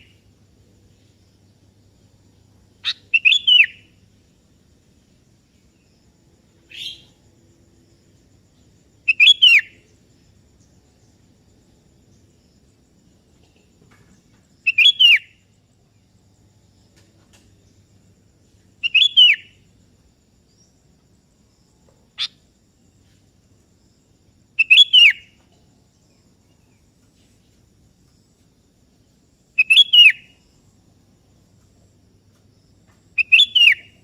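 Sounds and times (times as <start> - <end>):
bird whistled calls: 2.8 - 3.9, 6.7 - 7.1, 9.1 - 9.8, 14.7 - 15.3, 18.8 - 19.5, 24.6 - 25.3, 29.6 - 30.3, 33.2 - 34.0.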